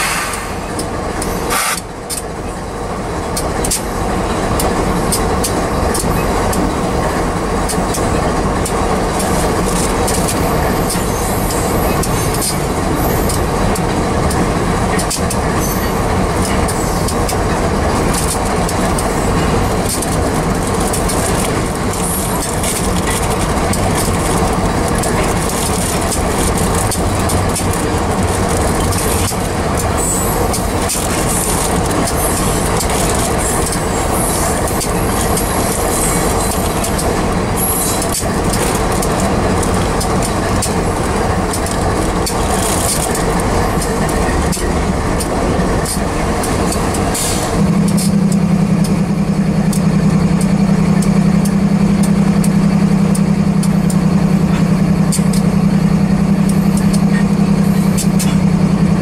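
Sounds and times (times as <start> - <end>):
freight train wheels rumbling: 0.0 - 59.0
wheels clicking over rail joints: 0.0 - 59.0.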